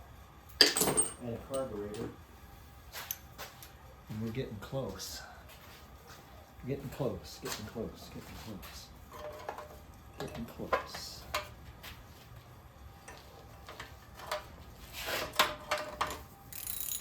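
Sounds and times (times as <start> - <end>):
metallic clinks of hand tools: 16.5 - 17.0.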